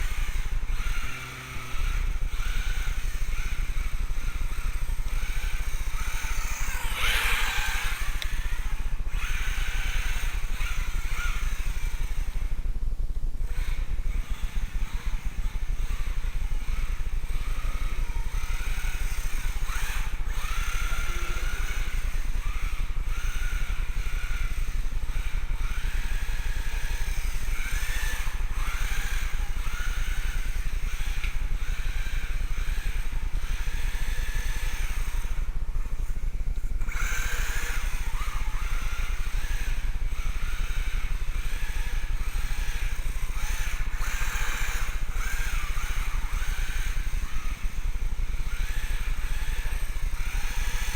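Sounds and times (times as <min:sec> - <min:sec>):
toy car electric motor whining: 0:00.0 - 0:12.7, 0:13.4 - 0:50.9
steady low rumble: 0:29.4 - 0:37.3.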